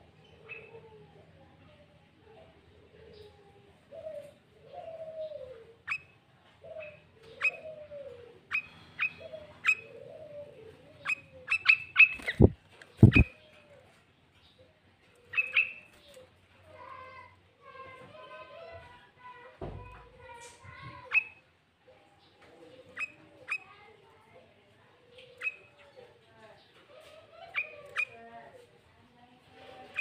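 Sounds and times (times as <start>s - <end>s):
warbled bird notes: 11.0s - 13.4s
bird chirping: 11.0s - 13.6s, 14.3s - 16.0s.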